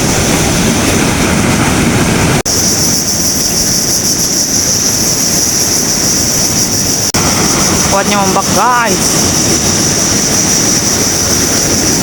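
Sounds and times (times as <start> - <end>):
waves breaking on beach: 0.0 - 12.0
wind blowing across microphone: 0.0 - 12.0
high-pitched hiss: 2.5 - 12.0.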